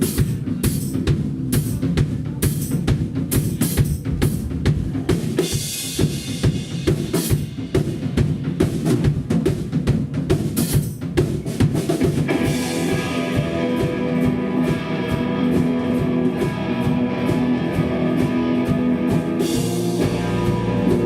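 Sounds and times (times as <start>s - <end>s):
drums pounding: 0.0s - 21.0s.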